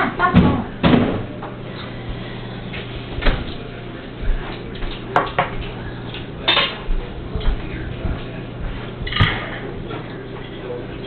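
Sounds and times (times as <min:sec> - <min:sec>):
low steady hum: 0:00.0 - 0:11.0
cutlery and dishes clinking: 0:06.4 - 0:06.9.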